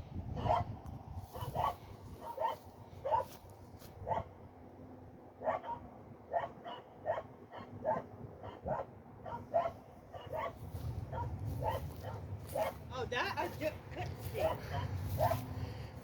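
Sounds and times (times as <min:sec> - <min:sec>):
dog barking: 0:00.4 - 0:00.7, 0:01.3 - 0:03.4, 0:04.0 - 0:04.3, 0:05.4 - 0:12.8, 0:14.3 - 0:15.5.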